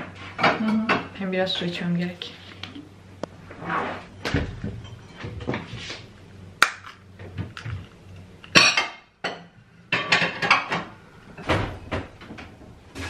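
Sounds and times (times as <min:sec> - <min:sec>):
dishes and cutlery clinking: 0:04.6 - 0:06.0, 0:08.5 - 0:10.9.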